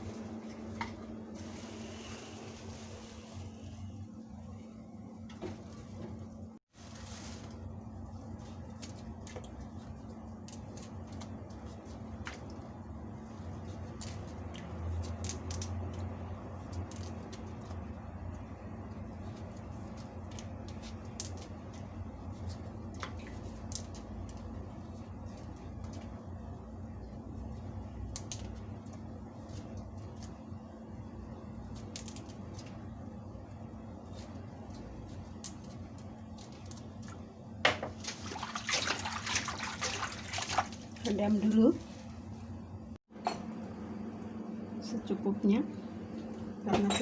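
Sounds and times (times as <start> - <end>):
steady low hum: 0.0 - 47.0
water splashing into container: 37.9 - 41.1.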